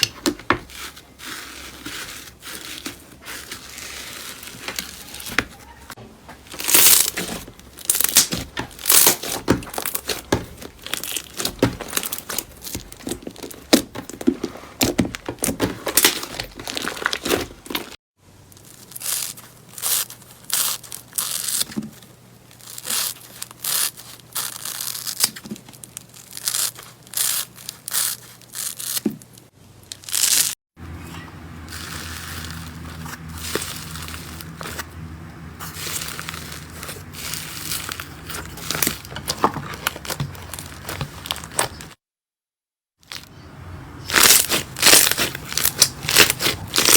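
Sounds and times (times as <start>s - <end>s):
slime crackling and popping: 6.6s - 13.8s, 29.9s - 30.6s, 44.1s - 46.9s.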